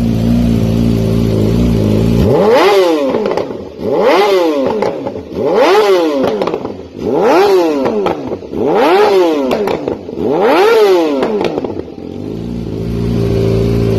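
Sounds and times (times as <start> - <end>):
motorcycle engine revving: 0.0 - 13.9
exhaust popping: 1.0 - 7.1, 7.7 - 11.9.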